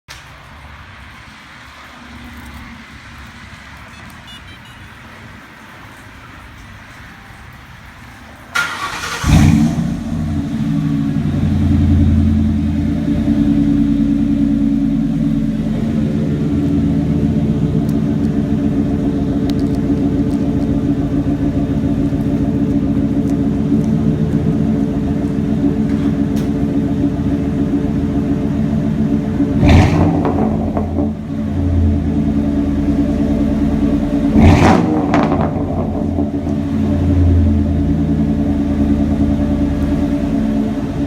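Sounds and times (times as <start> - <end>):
car engine idling: 0.4 - 41.0
starter cranking engine: 8.5 - 10.4.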